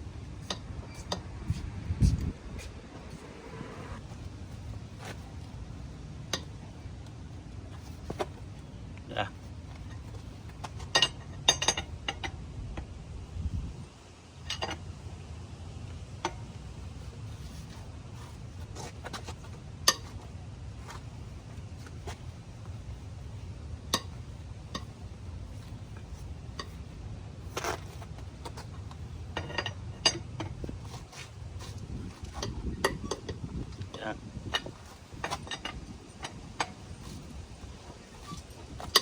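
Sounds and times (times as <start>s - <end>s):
steady low rumble: 0.0s - 18.8s
lug wrench clinking on lug nuts: 6.2s - 6.8s, 9.7s - 12.4s, 14.4s - 15.1s, 16.1s - 39.0s.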